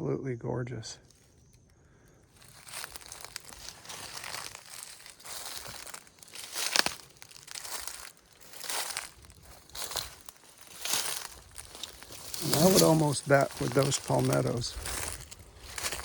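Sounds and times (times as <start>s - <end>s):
footsteps crunching dry leaves: 2.3s - 16.0s
twig snapping: 2.4s - 12.4s.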